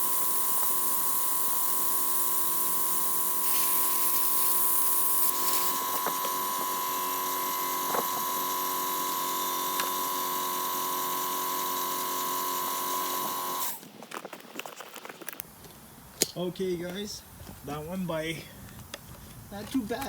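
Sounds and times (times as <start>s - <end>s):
compressed air hissing with whistle: 0.0s - 6.1s.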